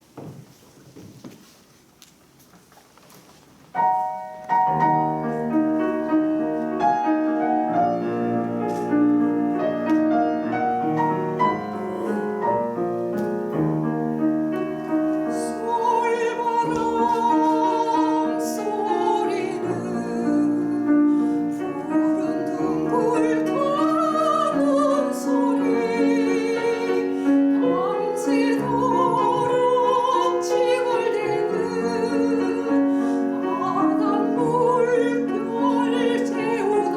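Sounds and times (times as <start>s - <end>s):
piano accompaniment: 3.6s - 36.9s
soprano singing with vibrato: 14.6s - 36.9s.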